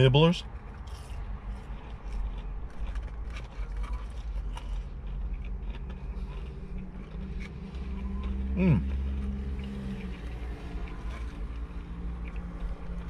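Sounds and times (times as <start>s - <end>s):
man humming mmm: 8.5s - 8.9s.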